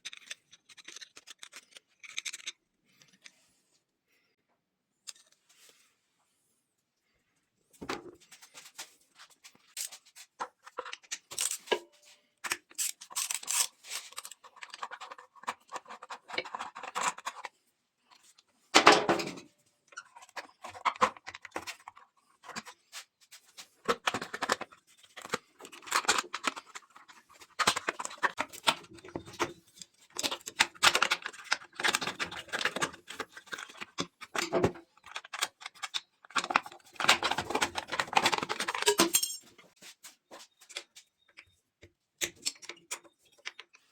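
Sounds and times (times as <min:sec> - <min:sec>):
metal tools clinking: 0:38.7 - 0:39.5.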